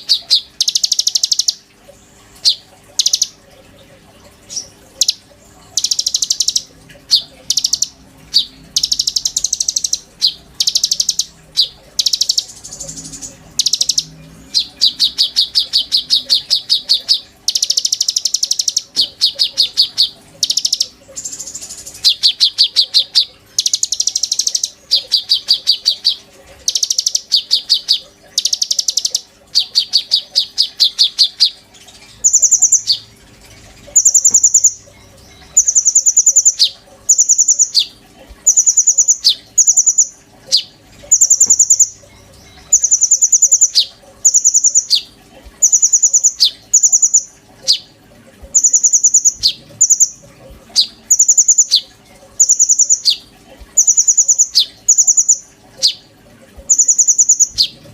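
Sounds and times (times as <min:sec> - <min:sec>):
songbird trilling: 0:00.0 - 0:01.6, 0:02.4 - 0:03.4, 0:04.5 - 0:31.6, 0:32.2 - 0:33.1, 0:33.9 - 0:37.9, 0:38.5 - 0:47.9, 0:48.5 - 0:53.2, 0:53.8 - 0:56.0, 0:56.7 - 0:57.8.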